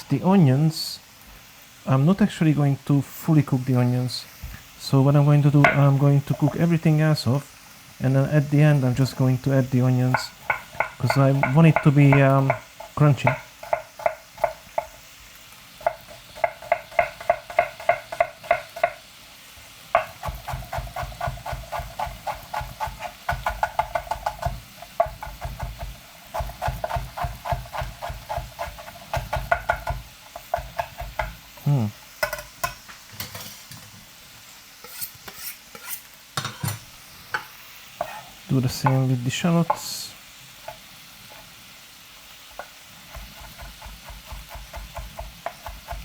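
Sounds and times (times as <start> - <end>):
knife chopping on cutting board: 10.1 - 14.9, 15.8 - 19.0, 20.0 - 31.4, 43.1 - 46.0.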